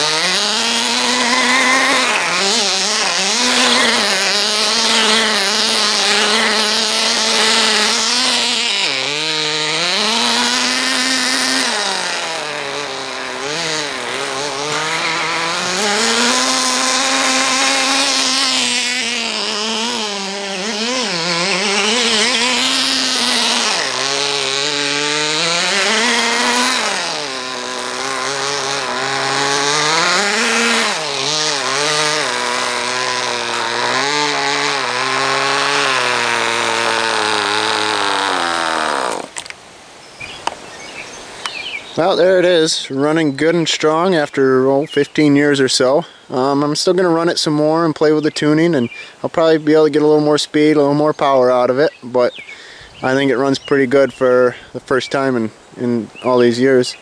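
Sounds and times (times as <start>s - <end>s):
small nitro engine revving: 0.0s - 39.6s.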